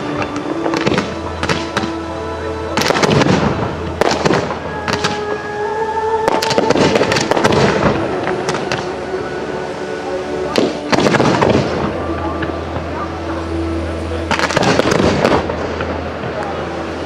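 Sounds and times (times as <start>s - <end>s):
fireworks bursting in sharp bangs: 0.1s - 2.0s, 2.8s - 5.3s, 6.3s - 9.0s, 10.5s - 12.9s, 14.3s - 16.6s.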